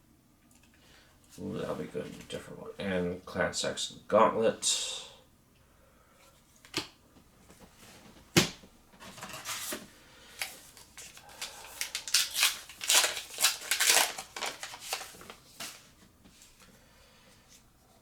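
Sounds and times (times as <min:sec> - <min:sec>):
foil wrapper crinkling and tearing: 0:10.4 - 0:15.8.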